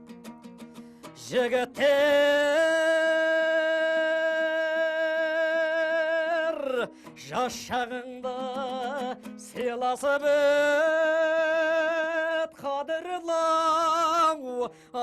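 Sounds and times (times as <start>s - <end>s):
plucked lute notes: 0.0s - 13.6s.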